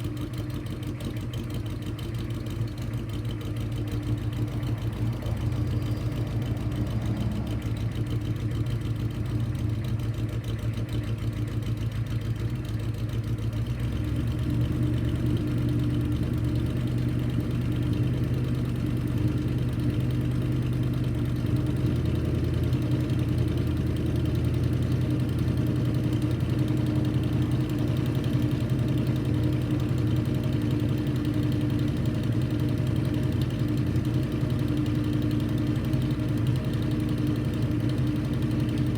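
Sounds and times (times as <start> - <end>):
diesel engine idling with clatter: 0.0 - 38.9.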